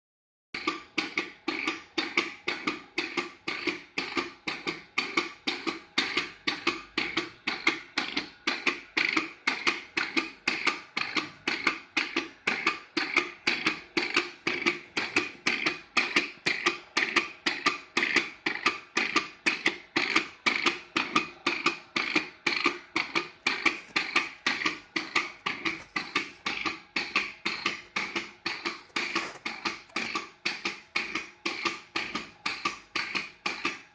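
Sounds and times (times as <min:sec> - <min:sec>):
clutch and brake clacking: 0:22.0 - 0:33.7.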